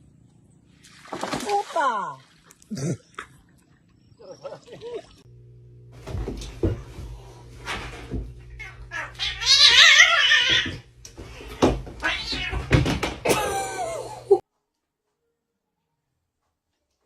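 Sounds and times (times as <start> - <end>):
animal cry with wavering pitch: 8.6 - 10.8
knocks and thuds: 10.5 - 13.4.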